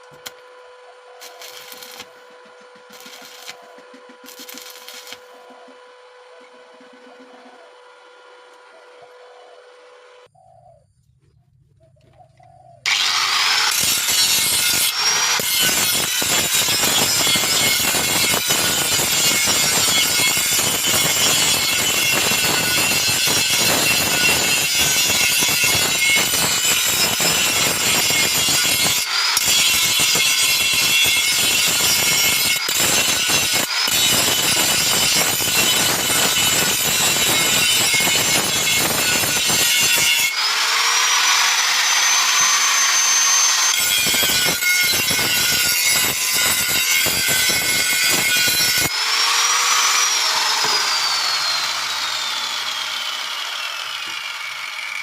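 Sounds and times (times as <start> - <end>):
welding arc crackling: 1.2 - 5.5, 13.5 - 40.4, 41.4 - 48.9.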